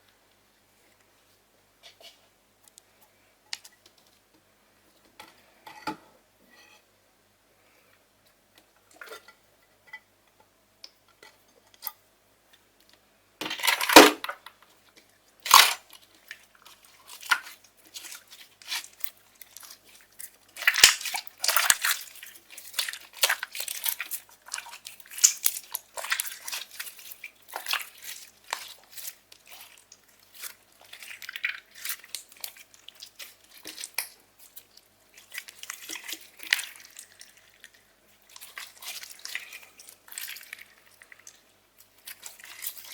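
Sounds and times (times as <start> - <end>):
slime squishing and crackling: 15.4 - 42.9.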